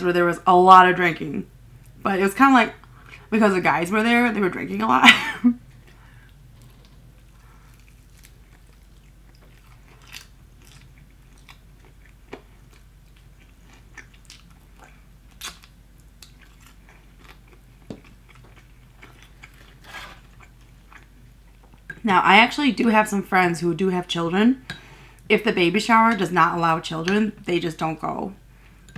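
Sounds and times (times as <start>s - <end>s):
chewing fried chicken: 5.7s - 21.9s.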